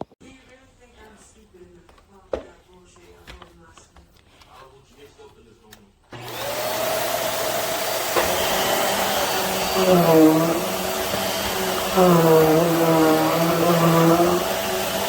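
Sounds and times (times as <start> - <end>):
vacuum cleaner running: 6.1 - 15.0.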